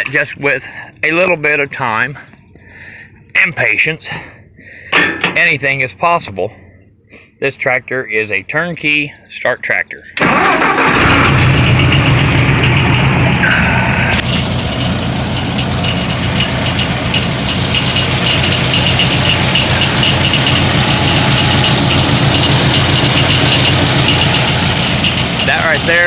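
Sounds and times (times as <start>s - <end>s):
tractor engine idling: 4.9s - 5.7s, 10.1s - 26.0s.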